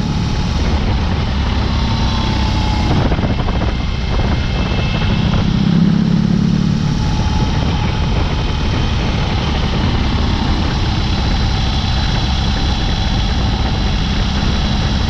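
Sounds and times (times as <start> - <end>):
motorcycle engine exhaust note: 0.0 - 15.0.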